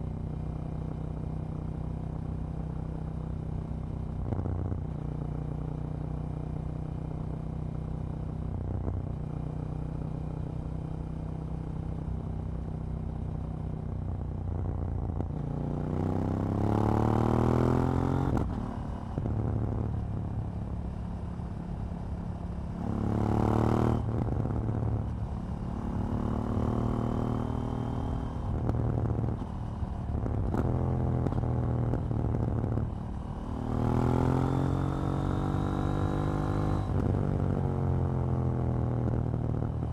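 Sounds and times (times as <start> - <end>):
motorcycle engine revving: 22.6 - 37.8.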